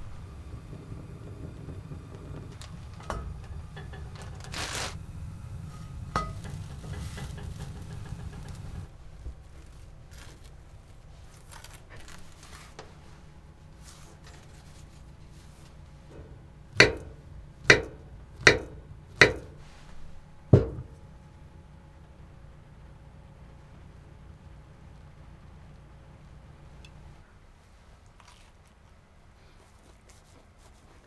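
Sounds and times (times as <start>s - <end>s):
faint clicks and rustles: 0.0s - 18.2s, 26.8s - 31.0s.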